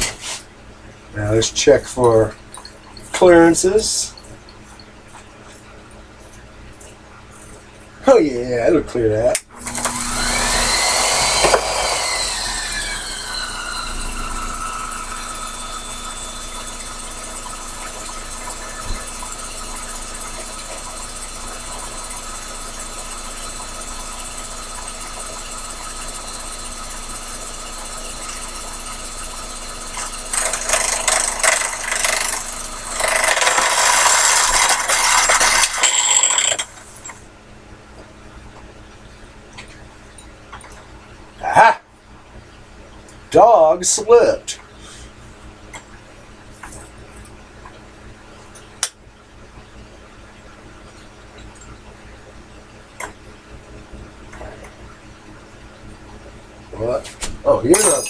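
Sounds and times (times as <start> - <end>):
lathe tool scraping metal: 9.6 - 22.1, 27.6 - 36.9
lathe motor whine: 9.6 - 36.6.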